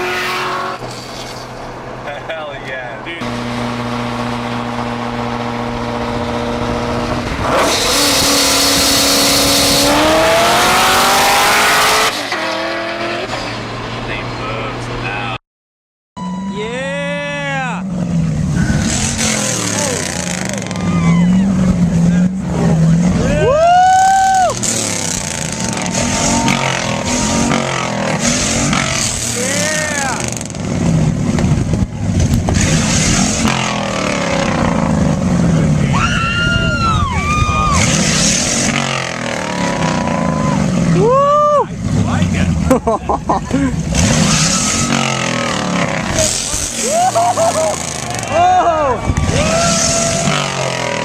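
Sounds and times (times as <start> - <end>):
car engine revving at full throttle: 3.2 - 15.0, 17.8 - 23.5, 24.1 - 35.9, 37.6 - 41.1, 41.8 - 48.5, 49.1 - 51.0
exhaust cracks: 24.0 - 35.9, 43.5 - 51.0.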